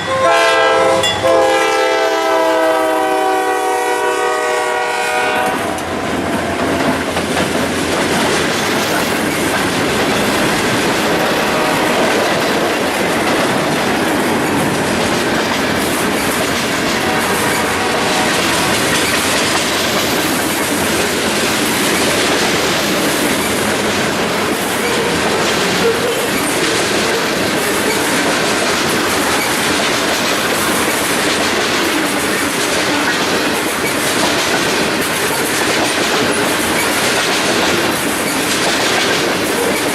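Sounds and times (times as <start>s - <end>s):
freight train wheels rumbling: 0.0s - 39.9s
wheels clacking over rail joints: 4.4s - 39.9s.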